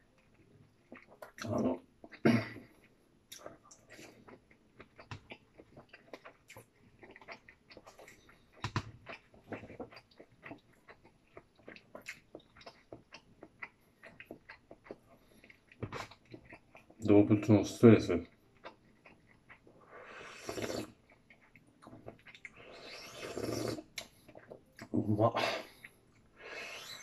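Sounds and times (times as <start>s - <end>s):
person chewing food: 0.0s - 17.2s, 18.1s - 25.0s, 25.6s - 27.0s.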